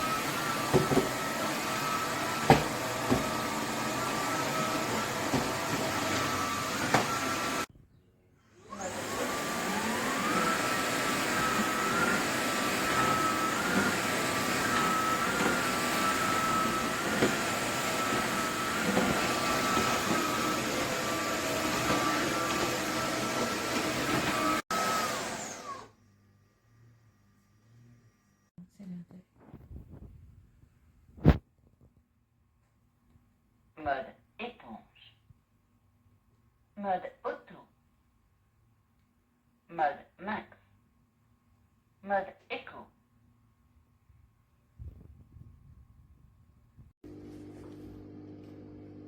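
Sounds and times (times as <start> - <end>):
vacuum mop motor whine: 0.0 - 7.7, 8.5 - 26.0.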